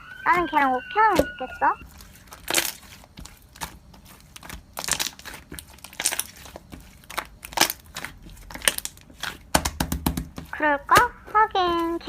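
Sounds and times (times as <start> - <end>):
slime squished by hand: 1.8 - 10.5.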